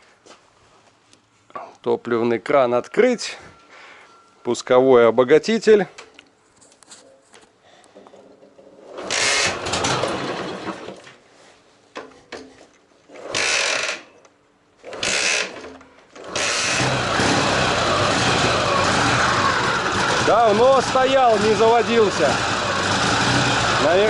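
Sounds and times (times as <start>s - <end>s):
motorcycle engine cranking: 8.8s - 11.2s, 14.8s - 24.0s
motorcycle engine running: 16.7s - 24.0s.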